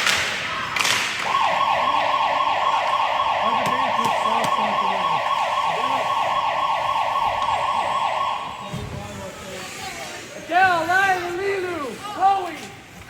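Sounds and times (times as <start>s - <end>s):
electronic siren-like signal: 1.2s - 8.7s.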